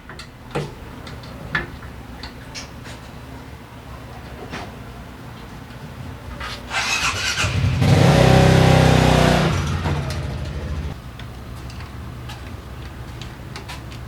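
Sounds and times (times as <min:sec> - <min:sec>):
motorcycle engine revving: 0:06.7 - 0:11.0.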